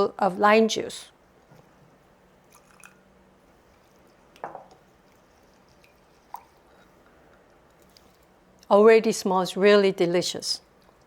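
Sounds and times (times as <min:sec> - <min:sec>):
faint liquid drips: 0:02.4 - 0:08.7.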